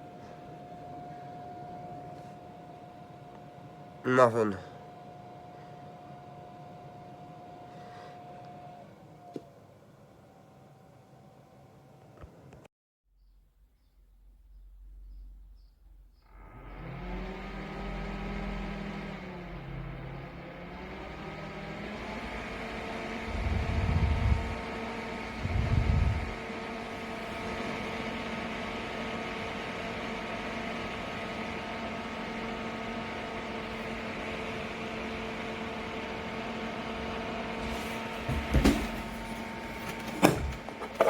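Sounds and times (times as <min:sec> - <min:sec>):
small electric fan humming: 0:00.0 - 0:12.6, 0:15.1 - 0:41.0
loud low rumbles: 0:23.2 - 0:24.7, 0:25.3 - 0:26.4.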